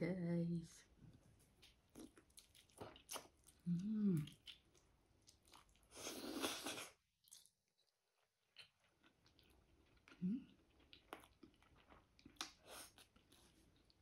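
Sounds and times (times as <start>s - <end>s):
chewing with wet mouth clicks: 1.6s - 6.0s, 7.2s - 14.0s.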